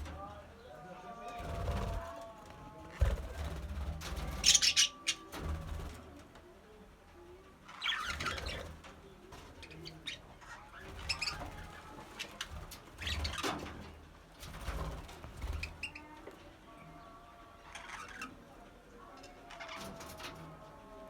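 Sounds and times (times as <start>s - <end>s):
budgerigars chattering and chirping: 4.2s - 5.3s, 9.8s - 13.4s.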